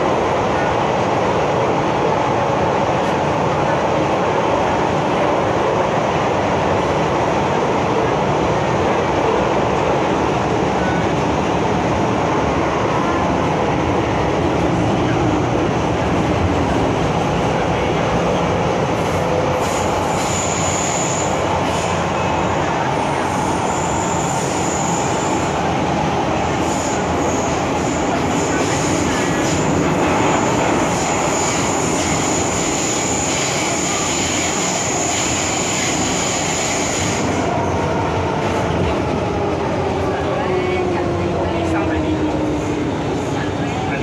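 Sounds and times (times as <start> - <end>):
train wheels rumbling on rail: 0.0 - 44.0
high-pitched brake squeal: 19.6 - 22.0, 23.1 - 25.4, 30.4 - 37.4.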